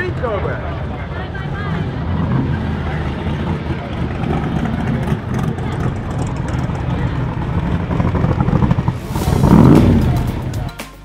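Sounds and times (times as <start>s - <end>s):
people talking: 0.0s - 8.4s, 9.0s - 10.8s
car engine rumbling: 0.0s - 10.8s.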